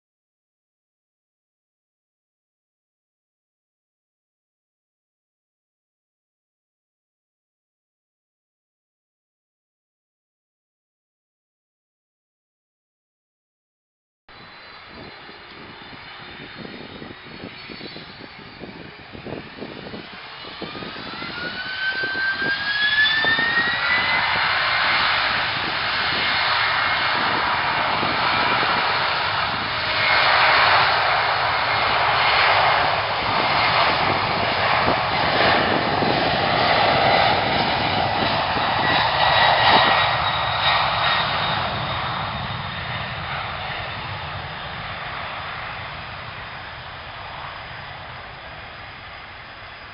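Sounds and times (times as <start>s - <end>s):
jet airliner engines passing: 14.3s - 49.9s.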